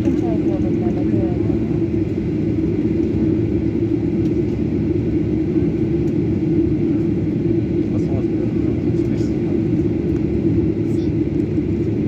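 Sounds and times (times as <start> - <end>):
jet engine rumble in cabin: 0.0 - 12.0.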